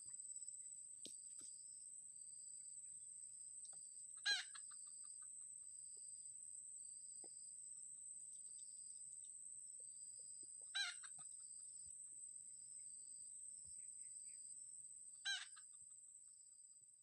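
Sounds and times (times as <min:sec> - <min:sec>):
junglefowl calls: 0:04.2 - 0:05.4, 0:10.7 - 0:11.4, 0:15.2 - 0:15.8.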